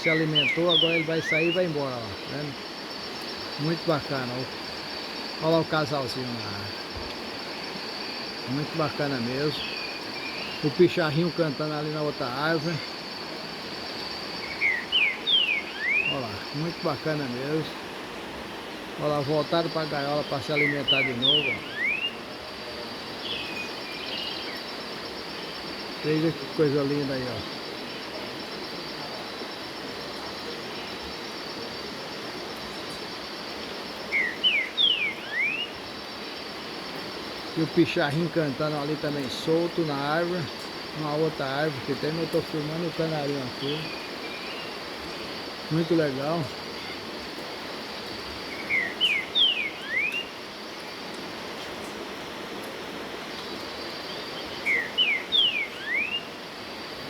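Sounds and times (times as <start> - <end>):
songbird whistled notes: 0.0 - 1.7, 14.4 - 16.3, 20.3 - 22.2, 34.1 - 35.8, 48.5 - 50.3, 54.6 - 56.3
high insect drone: 0.0 - 57.0
steady background hiss: 0.0 - 57.0.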